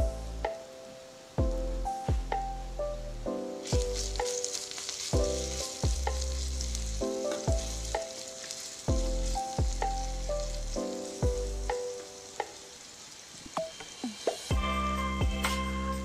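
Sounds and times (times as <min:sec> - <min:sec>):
music: 0:00.0 - 0:16.0
onion sizzling in hot oil: 0:03.6 - 0:14.7.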